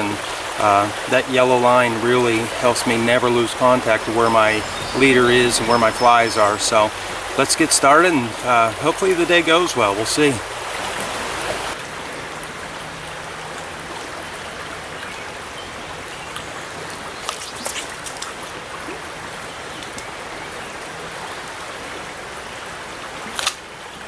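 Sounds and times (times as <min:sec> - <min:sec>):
river water running: 0:00.0 - 0:24.0
short sharp splashes: 0:17.2 - 0:18.6.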